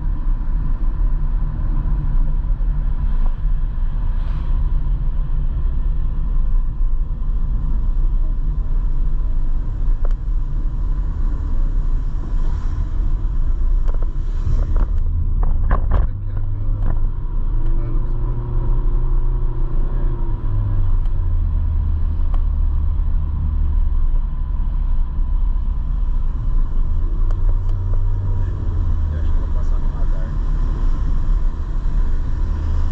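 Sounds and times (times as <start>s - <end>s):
wind noise on microphone: 9.5s - 17.3s.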